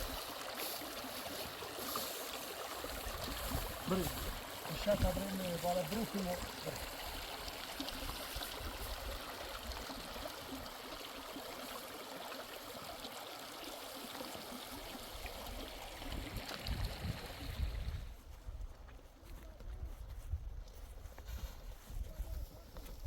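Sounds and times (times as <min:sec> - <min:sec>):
mountain stream rushing: 0:00.0 - 0:17.6.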